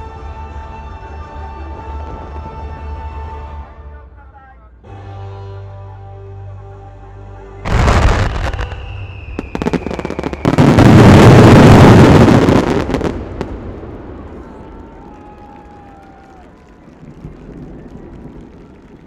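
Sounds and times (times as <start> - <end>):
music with held notes: 4.8 - 8.7
falling whistle: 7.7 - 10.9
fireworks crackling: 7.7 - 19.0
fireworks exploding: 7.7 - 19.0.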